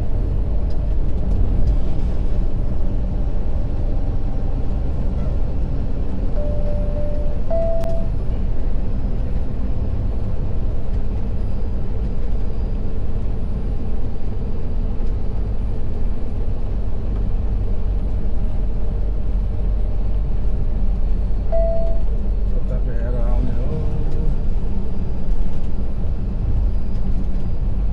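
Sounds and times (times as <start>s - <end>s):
truck engine and road noise: 0.0s - 27.9s
short beep: 6.3s - 8.1s, 21.5s - 22.1s.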